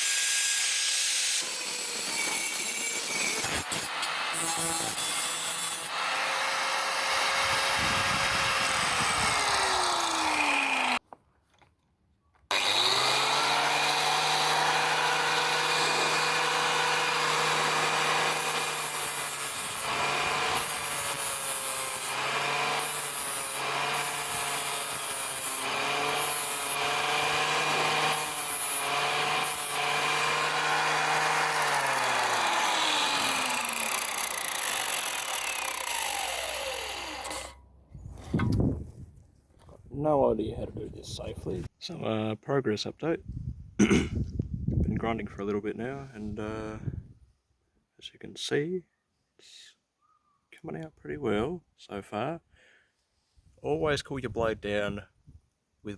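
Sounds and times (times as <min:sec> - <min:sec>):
angle grinder grinding steel: 0:00.0 - 0:11.0, 0:12.5 - 0:37.7.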